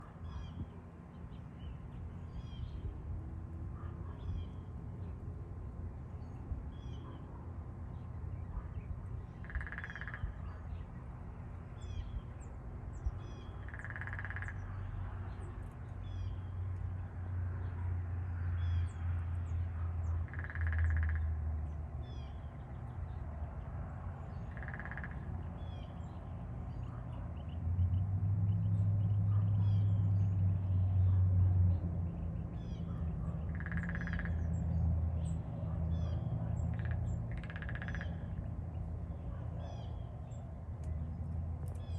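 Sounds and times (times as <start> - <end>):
woodpecker drumming: 9.4 - 10.2, 13.7 - 14.6, 20.3 - 21.2, 24.6 - 25.1, 33.5 - 34.4, 36.7 - 38.1.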